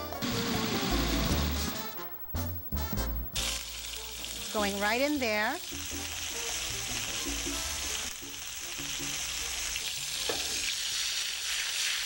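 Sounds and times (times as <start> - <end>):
sofrito sizzling in oil: 3.4 - 12.0.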